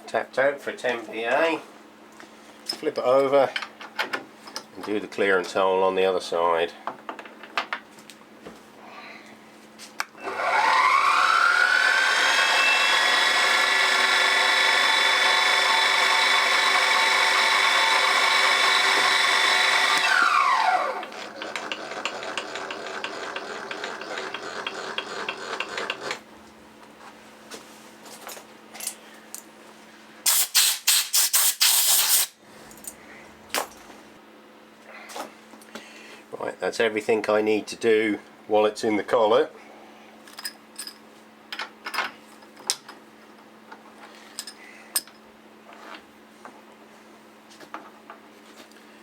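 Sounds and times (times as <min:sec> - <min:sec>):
spindle motor whining: 0:10.2 - 0:26.6.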